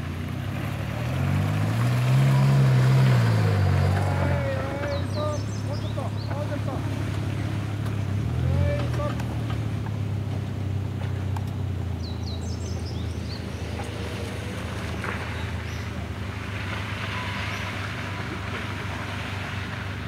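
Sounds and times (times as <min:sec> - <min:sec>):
vehicle engine running: 0:00.0 - 0:20.0
bird chirps: 0:04.8 - 0:06.6, 0:12.0 - 0:14.0.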